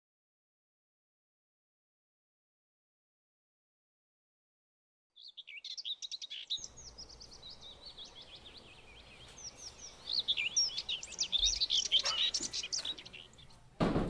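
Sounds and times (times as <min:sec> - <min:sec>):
small birds chirping: 0:05.1 - 0:13.8
faint outdoor background noise: 0:05.2 - 0:14.0.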